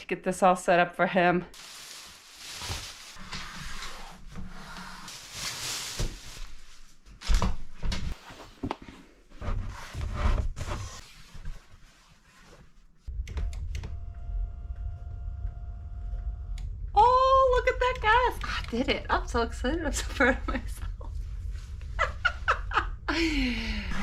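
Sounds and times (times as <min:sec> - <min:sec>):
rustling and handling noises: 0:01.5 - 0:13.0
low hum with faint tone: 0:13.1 - 0:24.0.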